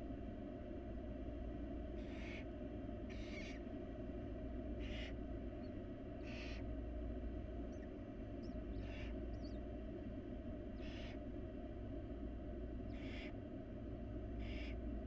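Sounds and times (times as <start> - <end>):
steady low hum: 0.0 - 15.0
barn owl screech calls: 2.0 - 2.5, 3.1 - 3.6, 4.8 - 5.2, 6.2 - 6.6, 8.4 - 9.6, 10.8 - 11.2, 12.9 - 13.4, 14.4 - 14.8.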